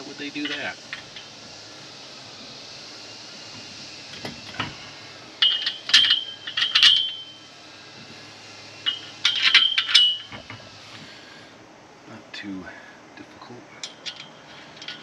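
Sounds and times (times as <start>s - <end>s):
metal frame parts clinking: 0.3s - 1.3s, 5.4s - 7.4s, 8.9s - 10.6s, 13.8s - 15.0s.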